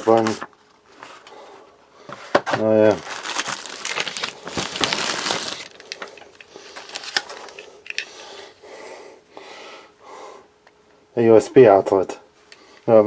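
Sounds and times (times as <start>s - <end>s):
packaging crinkling: 2.8s - 8.4s.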